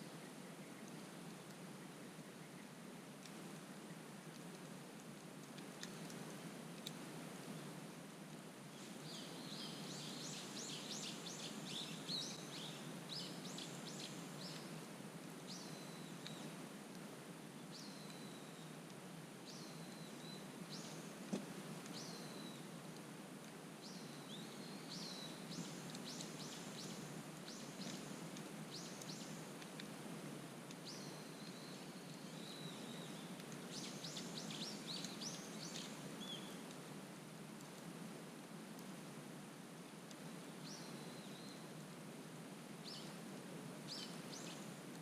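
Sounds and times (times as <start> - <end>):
campfire crackling: 0.1 - 40.6
small birds singing: 8.7 - 16.6, 17.6 - 18.8, 19.4 - 22.7, 23.8 - 29.8, 30.7 - 36.7, 40.5 - 41.7, 42.8 - 43.2, 43.8 - 44.8.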